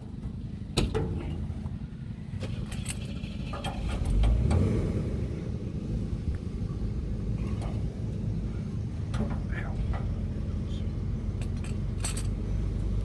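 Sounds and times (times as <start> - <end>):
vehicle engine idling: 0.0 - 13.0
metallic clinks of wrenches: 2.4 - 4.4, 11.4 - 12.4.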